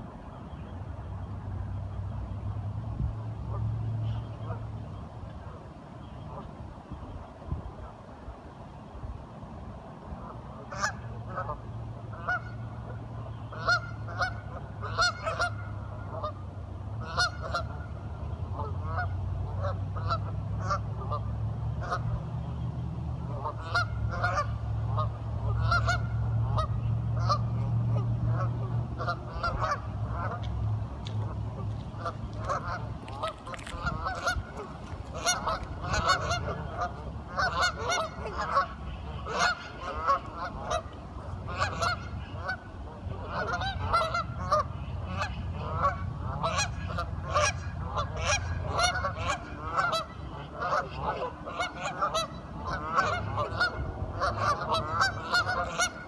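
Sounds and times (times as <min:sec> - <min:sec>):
low steady rumble: 0:09.9 - 0:56.0
waterfowl honking quacks: 0:10.6 - 0:16.4, 0:17.0 - 0:18.0, 0:18.6 - 0:22.1, 0:23.3 - 0:56.0.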